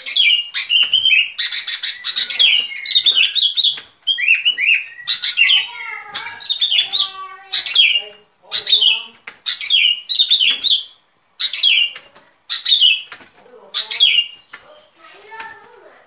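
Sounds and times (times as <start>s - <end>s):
bulbul whistled song: 0.0s - 5.6s.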